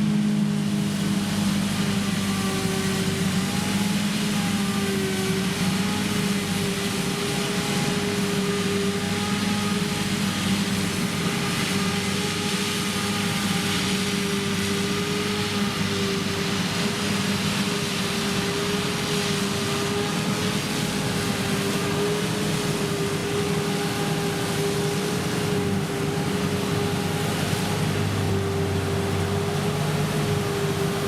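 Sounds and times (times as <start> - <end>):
forage harvester running under load: 0.0 - 31.0.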